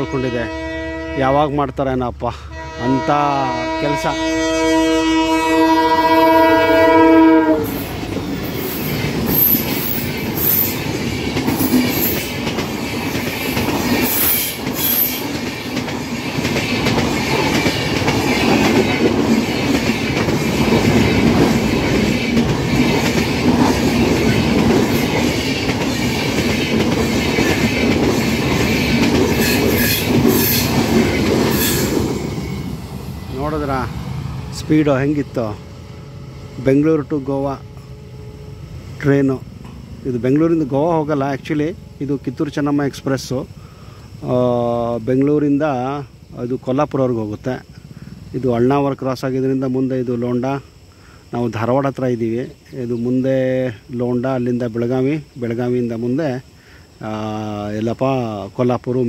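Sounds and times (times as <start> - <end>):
train horn: 0.0 - 1.5, 2.5 - 7.9
train wheels rumbling on rail: 1.6 - 59.0.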